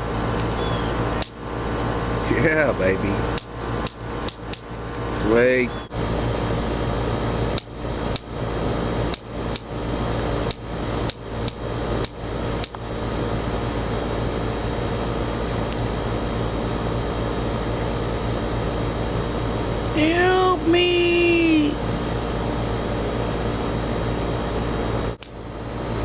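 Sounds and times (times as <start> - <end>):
steady electrical hum: 0.0 - 26.0
electric fly-swatter cracks: 0.4 - 5.0, 5.9 - 17.0, 23.6 - 25.5.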